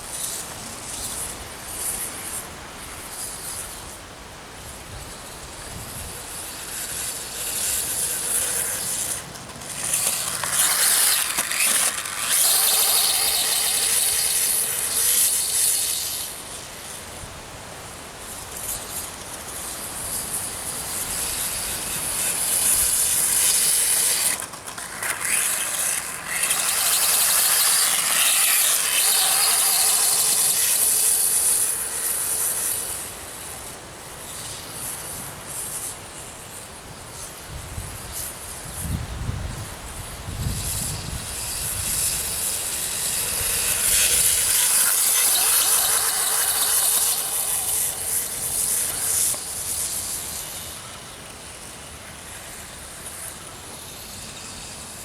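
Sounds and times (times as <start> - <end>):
electric motor whining: 0.0 - 17.1, 17.7 - 54.8.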